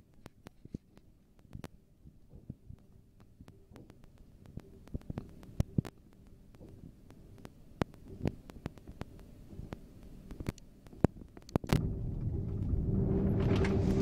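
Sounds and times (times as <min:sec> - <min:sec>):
railway carriage rumble: 0:11.8 - 0:14.0.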